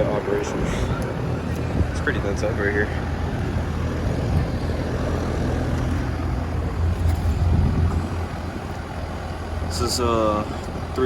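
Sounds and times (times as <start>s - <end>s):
compressor humming: 0.0s - 11.0s
condenser fan rushing: 0.0s - 11.0s.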